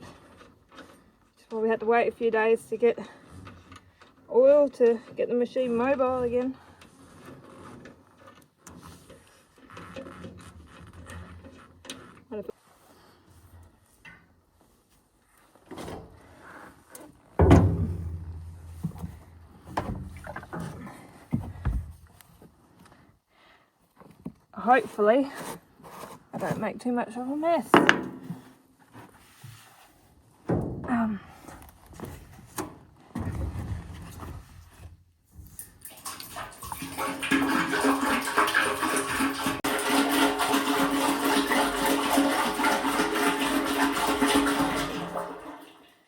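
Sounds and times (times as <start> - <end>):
container scraping: 15.4 - 21.6, 35.4 - 46.0
heavy objects knocking and clunking: 17.2 - 22.2, 27.7 - 28.7
hollow ringing clunk: 17.4 - 20.5.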